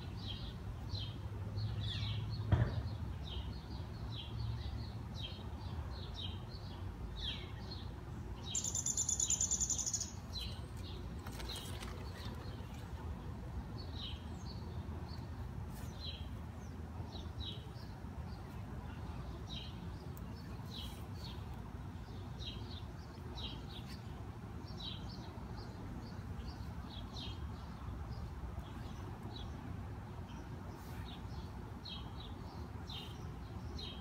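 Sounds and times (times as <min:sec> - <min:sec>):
bird chirping: 0:03.2 - 0:12.7.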